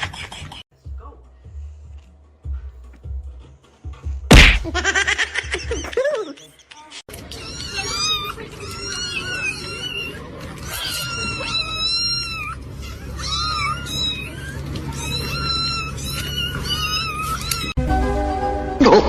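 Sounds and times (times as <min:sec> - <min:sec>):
cat meowing: 0:07.3 - 0:17.8.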